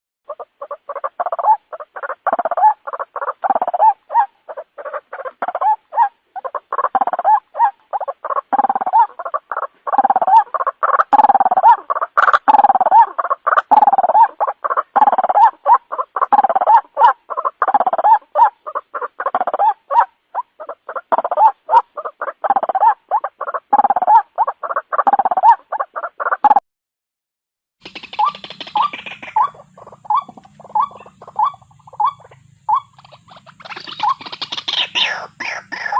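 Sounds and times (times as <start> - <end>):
bird stuttering call: 0.3 - 26.6, 27.8 - 35.9.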